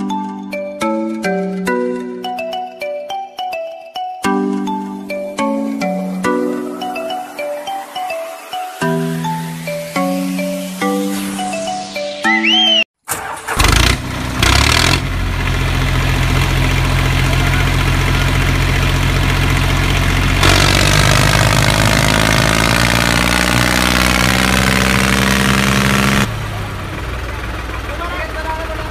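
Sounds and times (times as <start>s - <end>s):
musical jingle: 1.8s - 12.9s
tractor engine starting and running: 13.0s - 28.9s.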